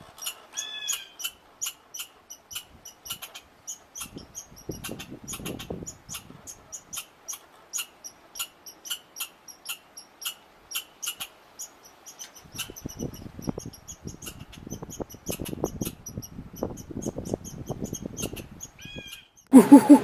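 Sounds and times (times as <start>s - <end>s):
rustling or scratching: 0.0s - 10.0s
small animal squeaking: 0.0s - 19.9s.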